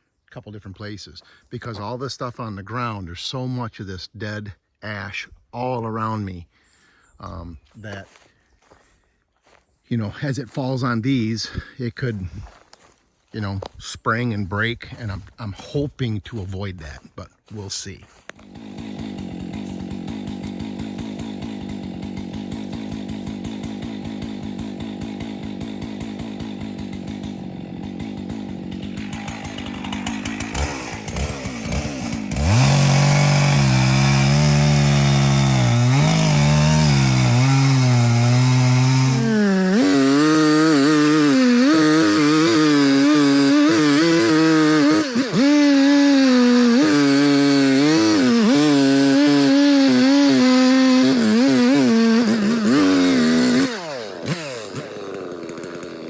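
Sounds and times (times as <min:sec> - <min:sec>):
chainsaw idling: 0:14.4 - 0:56.0
chainsaw cutting wood: 0:16.3 - 0:56.0.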